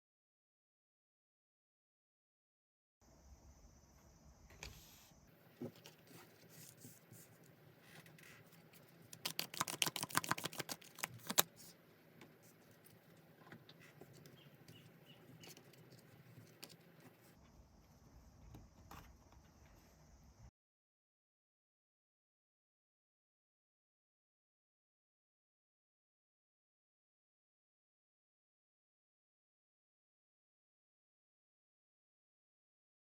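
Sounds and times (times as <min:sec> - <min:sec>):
cards being shuffled: 0:09.1 - 0:11.7.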